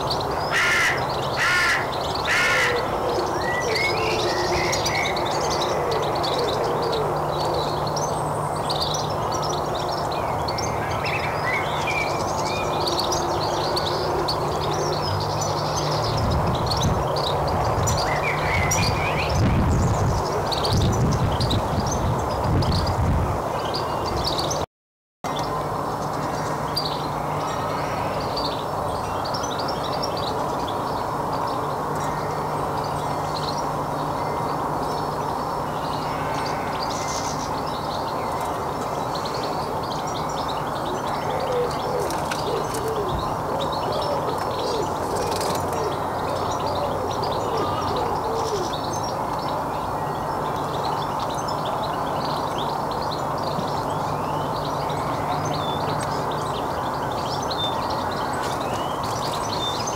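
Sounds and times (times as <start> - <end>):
bird low wavering calls: 0.0 - 22.1, 26.1 - 59.9
small birds chirping: 25.3 - 59.9.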